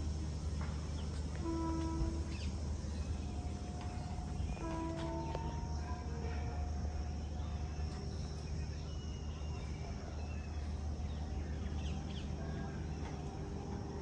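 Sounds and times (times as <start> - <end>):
steady low rumble: 0.0 - 14.0
faint bird chirps: 0.8 - 6.4.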